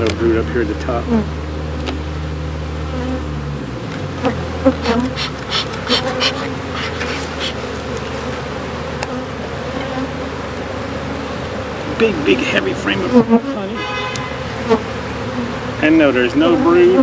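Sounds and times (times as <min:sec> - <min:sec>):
bees buzzing: 0:00.8 - 0:17.0
hive frames clicking and scraping: 0:03.9 - 0:12.3.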